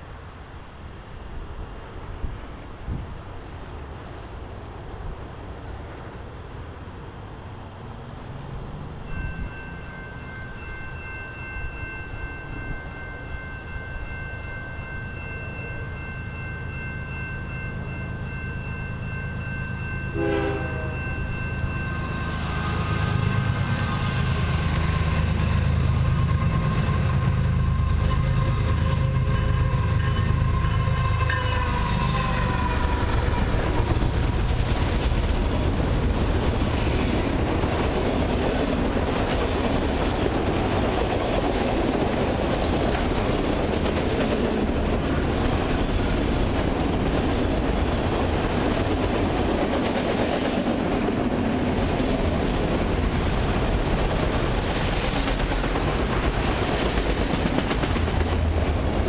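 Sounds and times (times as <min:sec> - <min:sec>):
train wheels clacking on rails: 0:09.0 - 0:59.0
locomotive horn chord: 0:20.1 - 0:24.4, 0:26.1 - 0:33.5.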